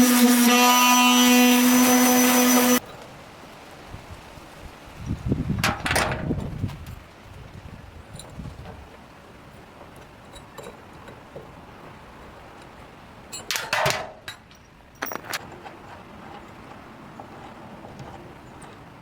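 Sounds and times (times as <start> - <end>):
metal clinking and scraping: 13.3 - 18.8.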